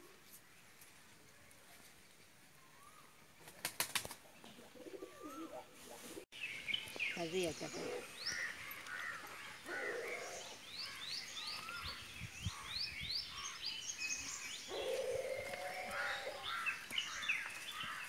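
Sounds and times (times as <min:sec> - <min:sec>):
birds chirping: 0:04.2 - 0:18.0.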